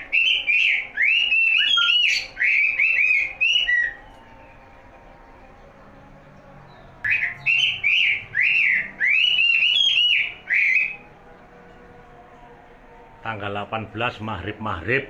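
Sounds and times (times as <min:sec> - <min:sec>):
songbird whistling: 0:00.0 - 0:04.9, 0:06.7 - 0:11.1.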